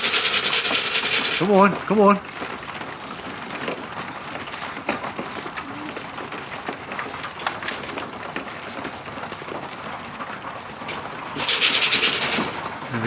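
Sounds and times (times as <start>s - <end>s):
light clicks and flutters: 0.0s - 2.0s, 10.8s - 13.0s
pigeon wings flapping: 0.0s - 13.0s.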